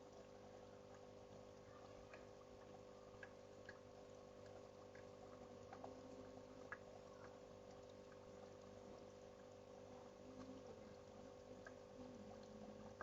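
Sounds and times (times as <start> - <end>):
small drips and ticks: 0.0 - 13.0
steady low hum: 0.0 - 13.0.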